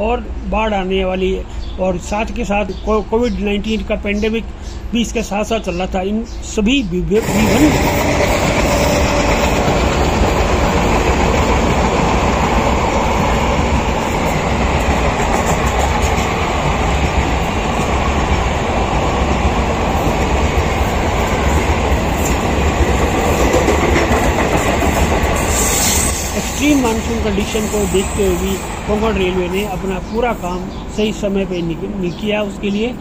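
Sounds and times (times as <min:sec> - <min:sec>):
train wheels on track: 0:07.2 - 0:33.0.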